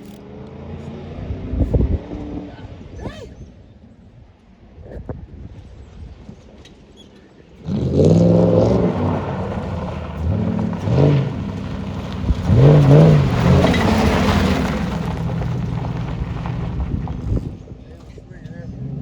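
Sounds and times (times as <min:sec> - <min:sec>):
car engine revving hard: 0:07.6 - 0:17.6.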